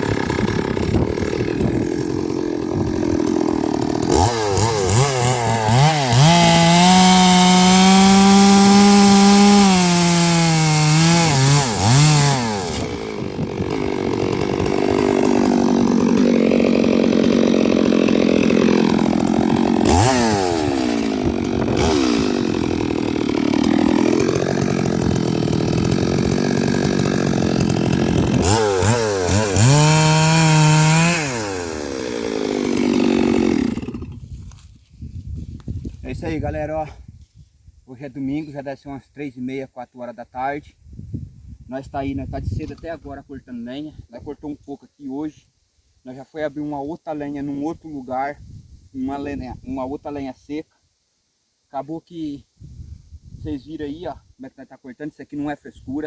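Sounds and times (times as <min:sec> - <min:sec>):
chainsaw cutting logs: 0:00.0 - 0:36.5.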